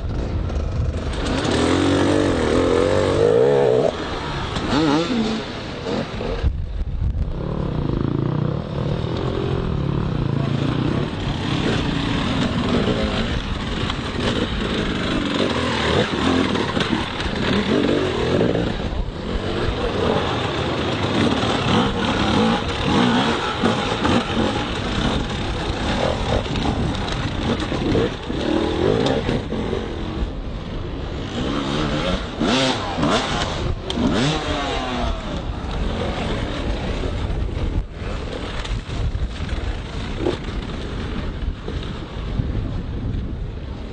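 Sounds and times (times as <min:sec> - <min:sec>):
dirt bike engines revving: 0:00.0 - 0:42.6.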